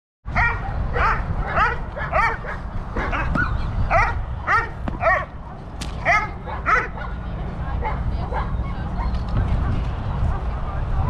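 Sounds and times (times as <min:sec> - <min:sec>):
wind rumble on microphone: 0:00.3 - 0:11.0
dog barking: 0:00.4 - 0:09.1.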